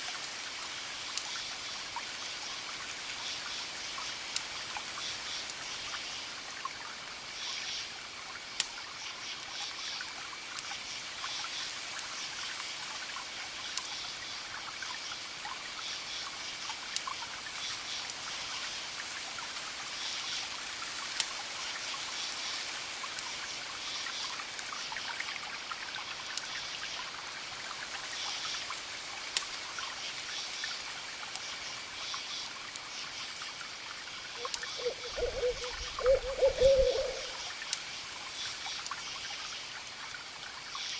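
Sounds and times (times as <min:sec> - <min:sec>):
crickets chirping: 0:31.5 - 0:39.6
owl hooting: 0:34.4 - 0:37.4.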